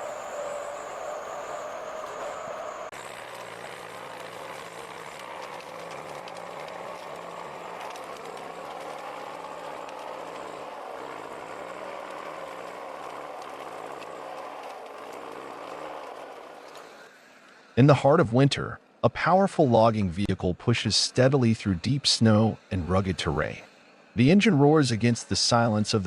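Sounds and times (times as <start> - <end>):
heavy vehicle engine running: 0.0 - 17.8
faint clicks: 1.9 - 17.7.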